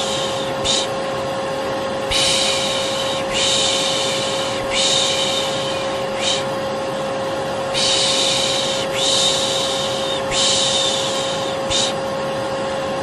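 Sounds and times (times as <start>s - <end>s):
person shushing: 0.0s - 1.0s, 2.1s - 6.5s, 7.8s - 12.0s
vacuum cleaner humming: 0.0s - 13.0s.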